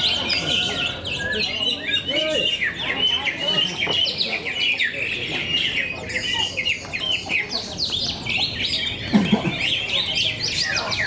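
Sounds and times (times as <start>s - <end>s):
birds singing and chirping: 0.0s - 11.0s.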